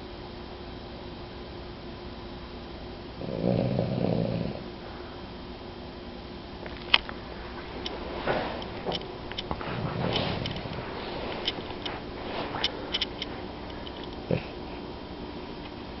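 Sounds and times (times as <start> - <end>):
dog snoring: 3.2 - 4.7, 7.2 - 14.8.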